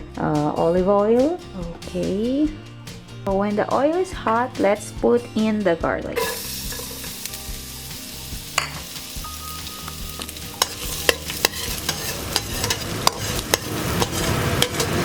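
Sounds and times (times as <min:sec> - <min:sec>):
garlic sizzling in hot oil: 0:06.2 - 0:15.0
utensil tapping against pan: 0:10.5 - 0:15.0.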